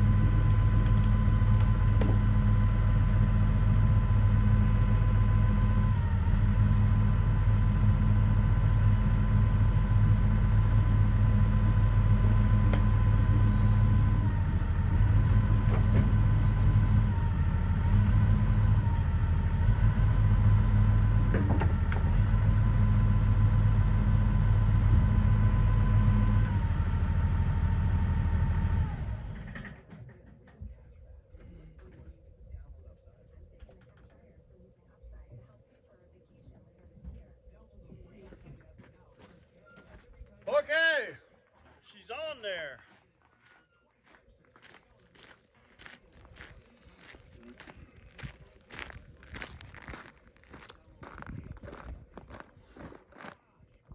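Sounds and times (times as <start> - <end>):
excavator diesel engine running: 0.0 - 31.2, 45.1 - 53.3.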